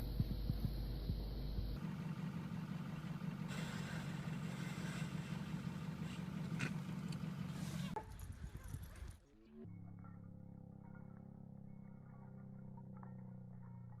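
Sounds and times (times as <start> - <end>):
steady low drone: 0.0 - 1.8, 9.6 - 14.0.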